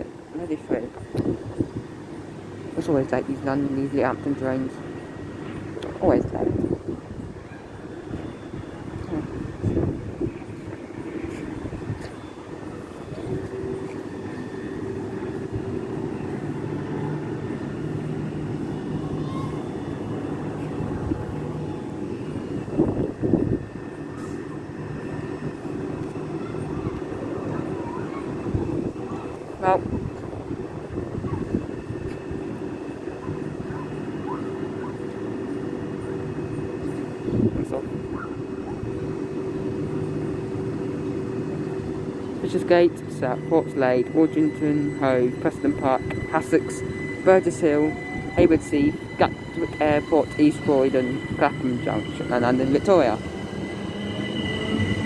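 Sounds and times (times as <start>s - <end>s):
electric train hum: 0.0s - 55.0s
low tone: 38.9s - 55.0s.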